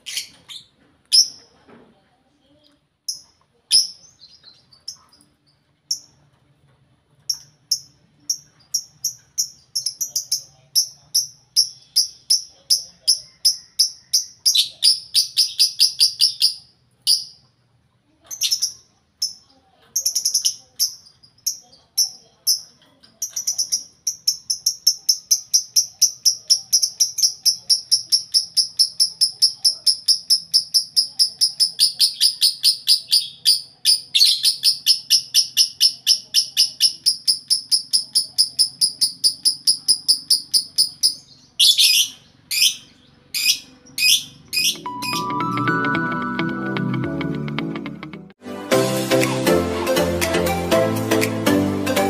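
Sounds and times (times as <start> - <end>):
lovebirds chirping shrilly: 31.8 - 45.3.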